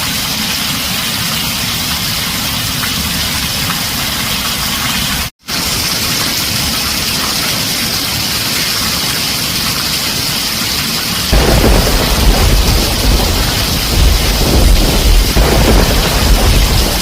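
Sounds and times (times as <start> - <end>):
heavy rain on a tin roof: 0.0 - 17.0
thunder rumbling: 11.3 - 17.0.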